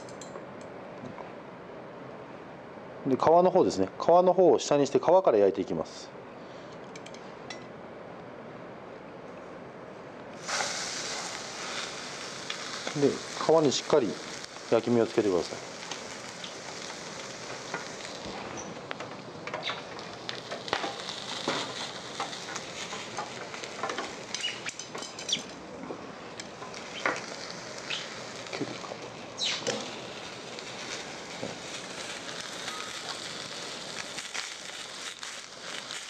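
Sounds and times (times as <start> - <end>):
pops and crackles: 10.4 - 14.8, 15.5 - 25.6, 26.4 - 36.0
fish sizzling in frying pan: 10.4 - 18.9, 19.6 - 25.6, 26.4 - 36.0.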